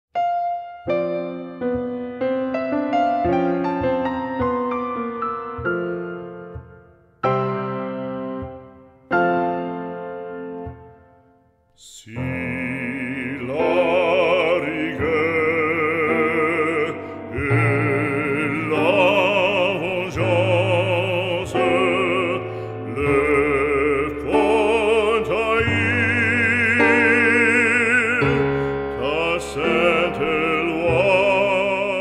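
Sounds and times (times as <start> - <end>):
operatic solo singing: 11.8 - 32.0.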